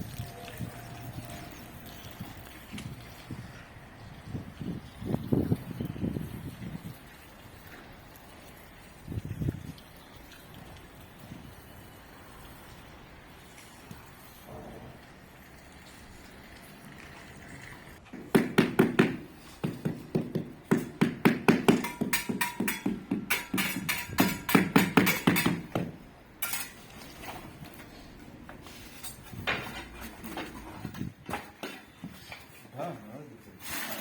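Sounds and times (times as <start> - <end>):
rapid hammer-like knocking: 18.2 - 23.3.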